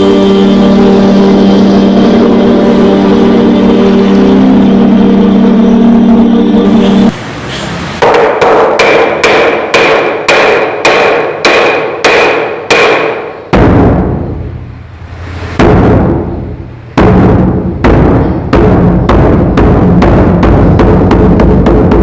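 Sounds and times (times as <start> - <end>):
sharp ringing knocks: 8.0 - 14.5, 15.6 - 22.0
deep booming drum beats: 8.0 - 22.0.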